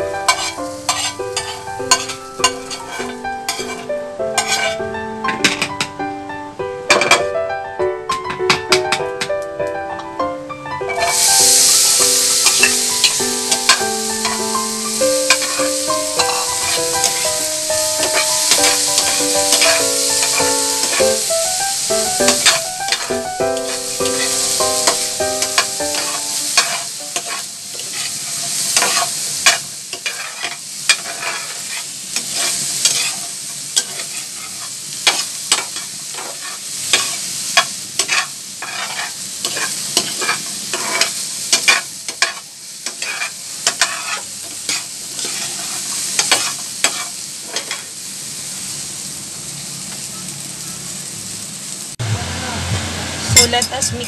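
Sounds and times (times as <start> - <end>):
okra sizzling in oil: 0.0 - 5.0, 10.8 - 53.6
utensil scraping a pan: 0.2 - 4.8, 10.9 - 11.5, 12.4 - 17.4, 18.0 - 21.2, 22.3 - 37.3, 38.0 - 47.9.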